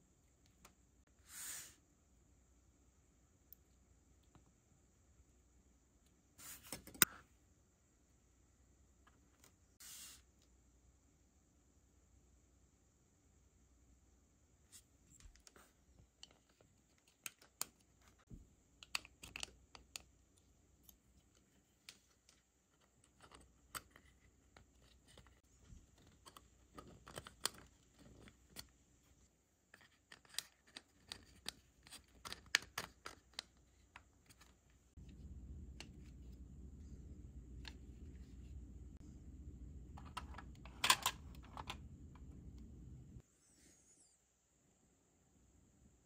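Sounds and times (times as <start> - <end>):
plastic parts clicking and scraping: 18.8 - 20.2, 20.8 - 28.8, 29.6 - 34.8, 40.0 - 41.9
steady low hum: 34.9 - 43.2.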